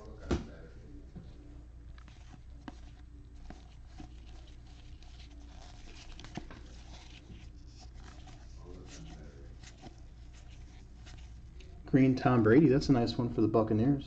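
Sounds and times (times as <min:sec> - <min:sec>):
low steady hum: 0:00.0 - 0:14.0
cards rustling and clicking: 0:01.8 - 0:11.8.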